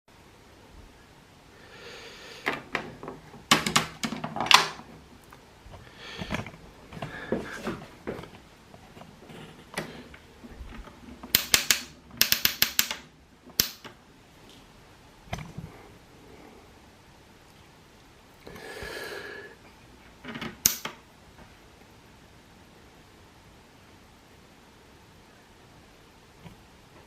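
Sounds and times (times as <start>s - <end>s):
plastic toy clicking: 11.3s - 13.9s.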